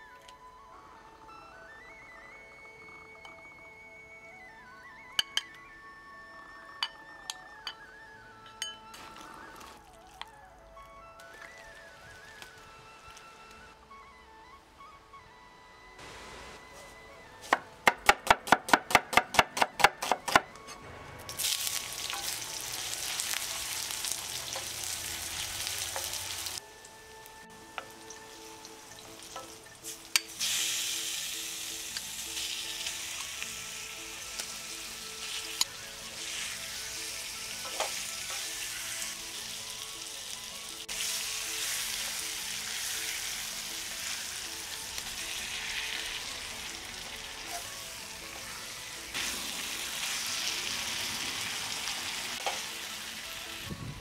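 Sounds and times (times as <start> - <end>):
food sizzling in hot oil: 21.2 - 53.7.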